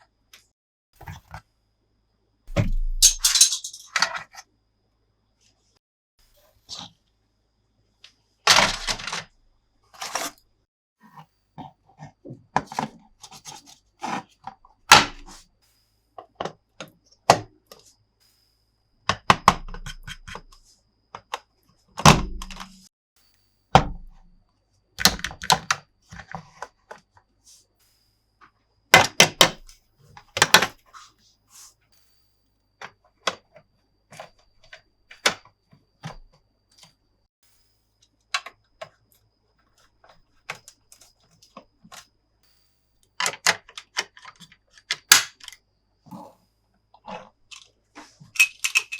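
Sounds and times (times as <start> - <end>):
plastic toy pieces clicking: 48.4 - 48.9.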